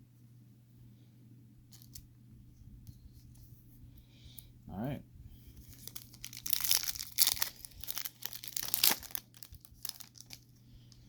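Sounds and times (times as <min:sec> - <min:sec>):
foil wrapper tearing and crinkling: 0:01.7 - 0:02.0, 0:05.7 - 0:10.5.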